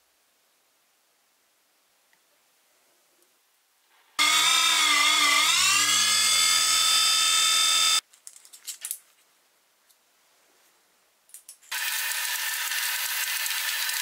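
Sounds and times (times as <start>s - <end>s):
power tool motor whine: 4.2s - 8.0s, 11.7s - 14.0s.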